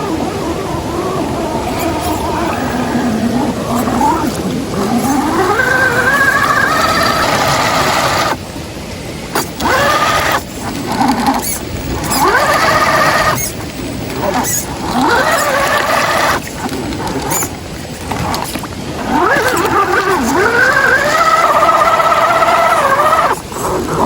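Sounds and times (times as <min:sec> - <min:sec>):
electric motor and gearbox whining: 0:00.0 - 0:24.0.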